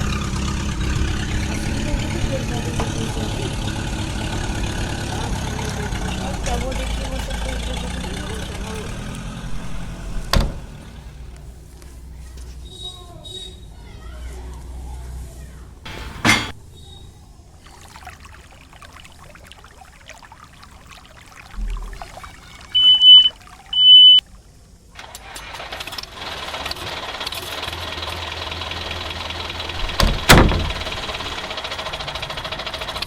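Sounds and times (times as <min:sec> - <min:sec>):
motor running: 0:00.0 - 0:11.0
sharp knock: 0:15.9 - 0:16.6
high beeps: 0:22.8 - 0:24.2.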